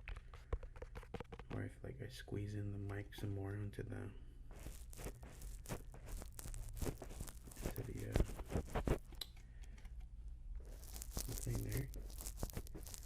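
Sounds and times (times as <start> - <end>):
styrofoam crunching and creaking: 4.5 - 9.1, 10.6 - 13.0.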